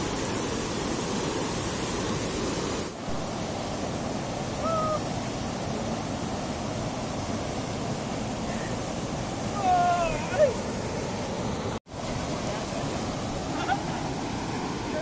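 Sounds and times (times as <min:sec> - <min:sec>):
fast-flowing river water: 0:00.0 - 0:15.0.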